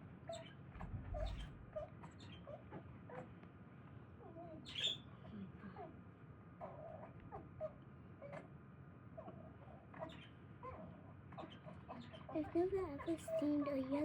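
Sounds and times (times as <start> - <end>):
small bird chirping: 0.3 - 2.8, 4.4 - 5.1, 9.9 - 14.0.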